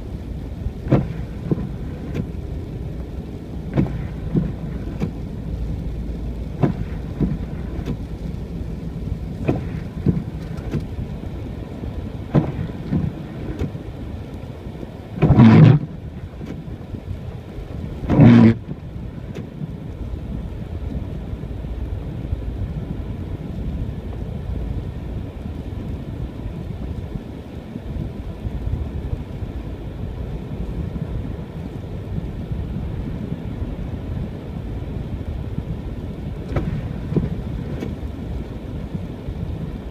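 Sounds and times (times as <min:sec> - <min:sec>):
car engine and tyres rumbling: 0:00.0 - 0:39.9
loud rough noise bursts: 0:15.2 - 0:15.8, 0:18.1 - 0:18.6.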